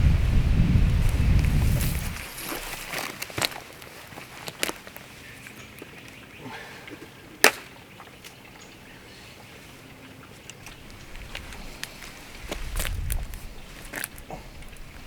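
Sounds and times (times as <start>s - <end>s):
footsteps through brush: 0.2s - 5.7s, 10.7s - 15.0s
sticks snapping: 7.4s - 7.7s.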